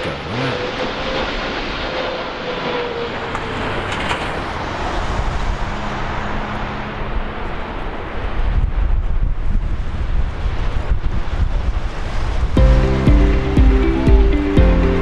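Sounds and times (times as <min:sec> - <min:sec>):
jet plane landing: 0:00.0 - 0:10.7.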